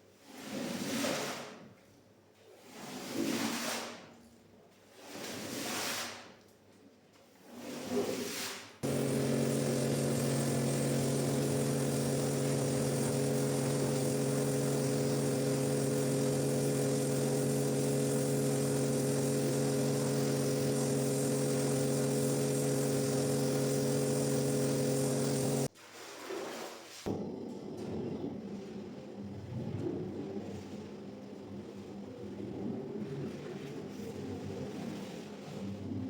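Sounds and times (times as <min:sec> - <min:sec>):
electric motor humming: 0:08.8 - 0:25.7.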